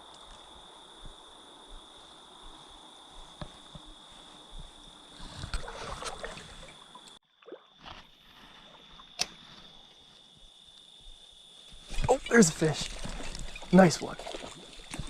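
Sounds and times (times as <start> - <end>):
creek water running: 5.2 - 9.4, 11.7 - 15.0.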